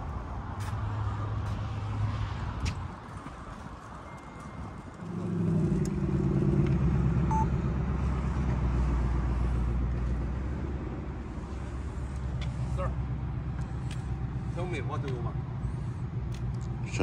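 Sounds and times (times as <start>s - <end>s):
car engine accelerating: 5.0s - 17.0s.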